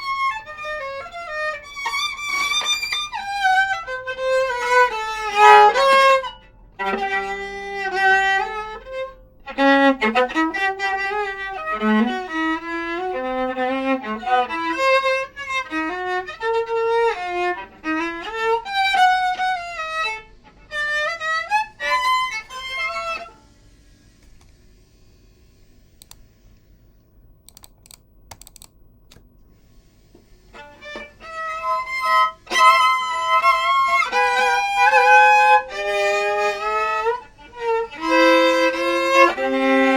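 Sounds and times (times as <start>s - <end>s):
solo viola playing: 0.0s - 23.8s, 30.2s - 39.9s
faint clicks: 24.2s - 24.6s, 26.0s - 29.5s.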